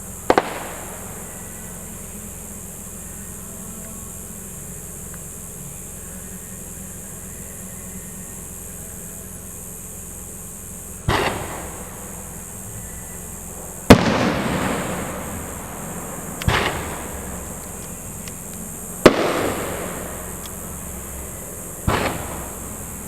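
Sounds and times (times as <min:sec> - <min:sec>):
firework shells bursting: 0:00.0 - 0:03.2, 0:10.2 - 0:23.0.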